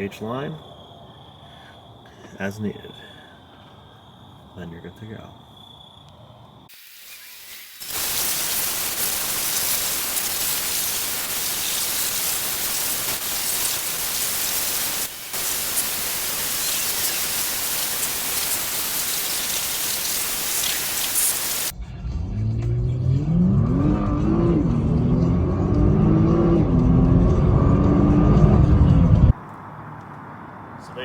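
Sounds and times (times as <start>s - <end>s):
water spraying on a car: 6.8s - 21.7s.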